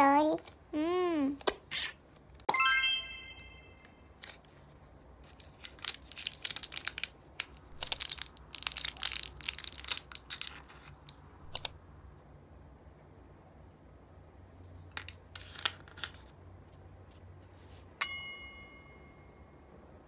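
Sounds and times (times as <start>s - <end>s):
foil wrapper crinkling: 5.3s - 11.0s.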